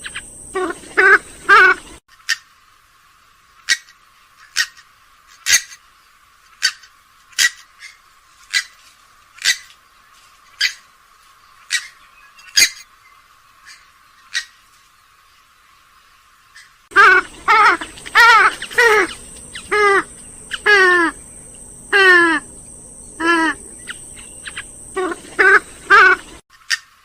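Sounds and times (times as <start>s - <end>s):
swamphen sharp call notes: 16.9s - 26.4s.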